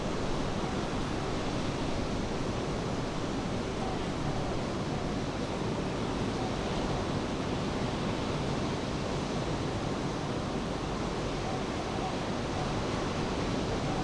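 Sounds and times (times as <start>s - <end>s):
rain: 0.0s - 10.0s.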